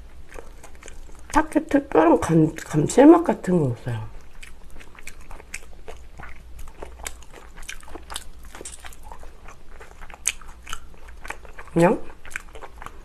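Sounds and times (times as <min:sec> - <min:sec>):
person chewing with mouth clicks: 0:00.0 - 0:01.4, 0:04.1 - 0:13.0.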